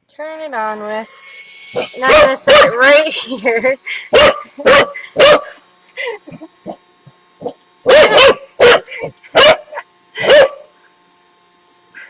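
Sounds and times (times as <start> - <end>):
puppy barking: 2.0 - 2.8, 4.1 - 5.6, 7.4 - 10.7.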